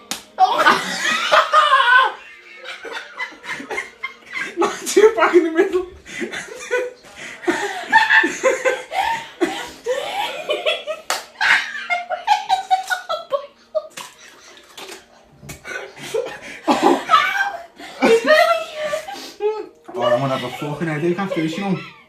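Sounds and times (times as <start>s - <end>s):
eggs smacking on head: 0.0s - 0.4s
people laughing: 0.4s - 22.0s.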